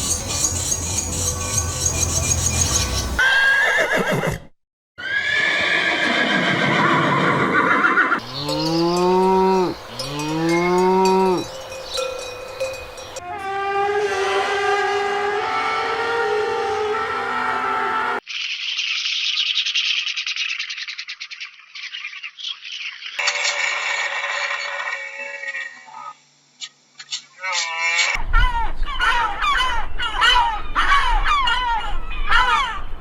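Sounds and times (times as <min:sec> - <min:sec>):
farm animals calling: 0:05.0 - 0:18.2.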